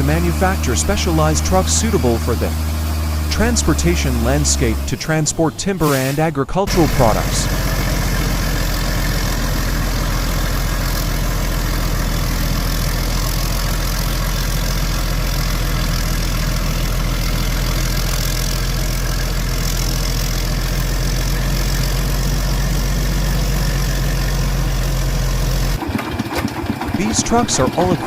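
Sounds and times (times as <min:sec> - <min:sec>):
truck engine idling: 0:00.0 - 0:28.0.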